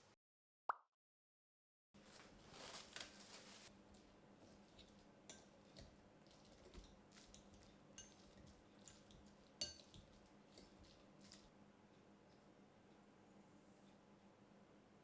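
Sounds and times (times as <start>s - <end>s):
utensils clinking against dishes: 6.8s - 11.4s.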